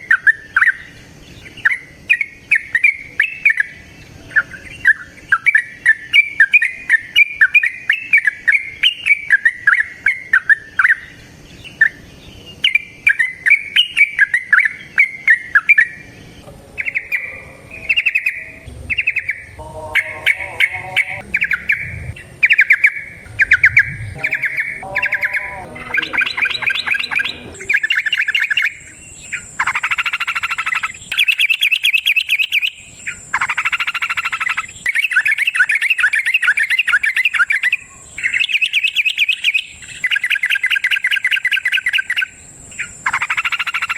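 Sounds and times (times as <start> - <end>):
bulbul singing bubbling chatter: 12.6 - 32.7.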